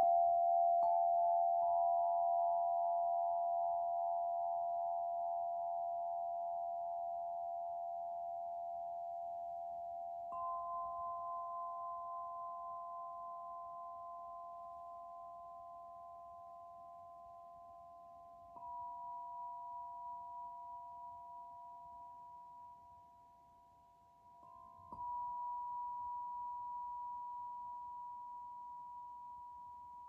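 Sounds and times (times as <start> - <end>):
ringing struck bowl tones: 0.0 - 7.0, 10.2 - 22.4, 24.4 - 30.0.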